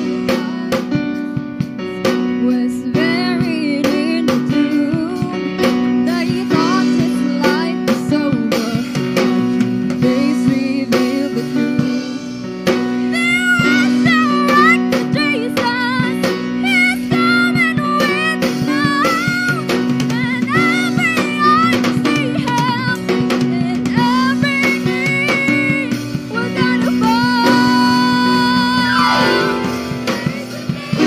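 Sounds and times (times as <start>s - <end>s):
group singing worship song: 27.6s - 31.0s.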